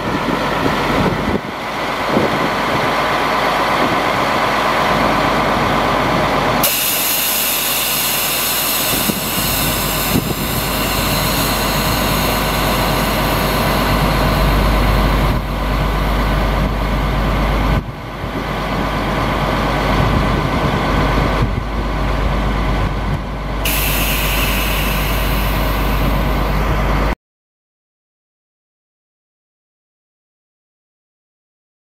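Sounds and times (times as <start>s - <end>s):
truck engine running: 0.0s - 27.2s
loud hiss: 6.6s - 15.5s, 23.6s - 26.7s.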